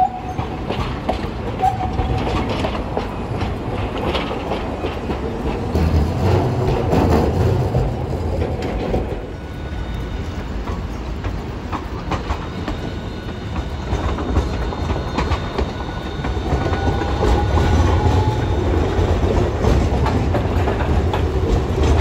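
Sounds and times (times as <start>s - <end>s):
streetcar wheels clacking over rails: 0.0s - 22.0s
high wheel squeals: 12.4s - 19.0s.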